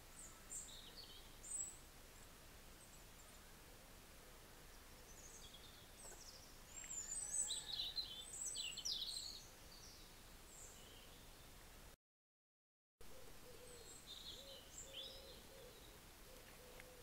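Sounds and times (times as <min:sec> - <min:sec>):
faint background hiss: 0:00.0 - 0:12.0, 0:13.0 - 0:17.0
birds chirping: 0:13.4 - 0:17.0.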